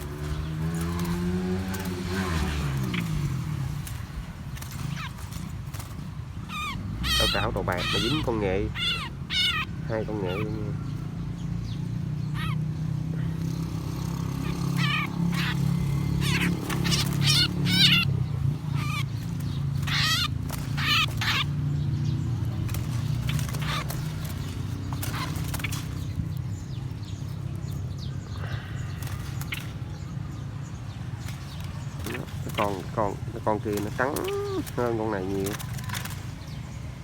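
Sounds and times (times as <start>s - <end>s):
songbirds chirping: 0.0s - 37.0s.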